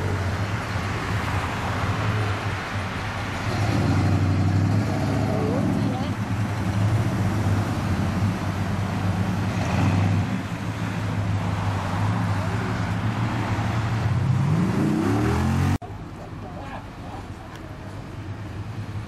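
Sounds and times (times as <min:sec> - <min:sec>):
traffic passing: 0:00.0 - 0:19.0
engine revving: 0:03.4 - 0:15.8.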